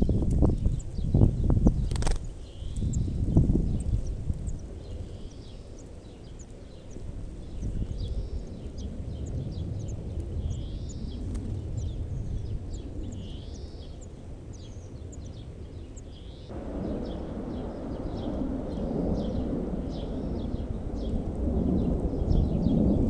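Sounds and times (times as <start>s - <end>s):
low rumble: 16.4s - 23.0s.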